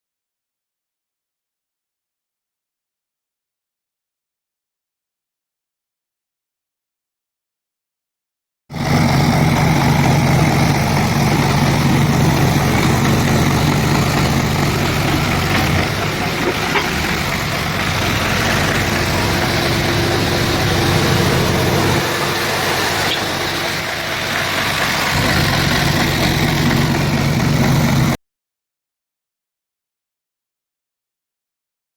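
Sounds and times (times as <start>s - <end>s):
tractor engine running: 8.7s - 28.2s
road sweeper brushing: 8.8s - 28.2s.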